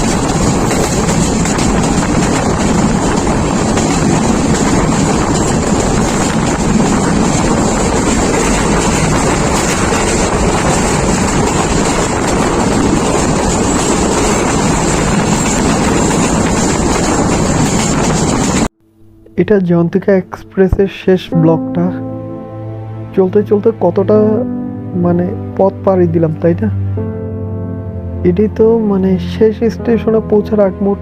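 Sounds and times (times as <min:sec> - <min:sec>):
train rumble from on board: 0:00.0 - 0:18.7.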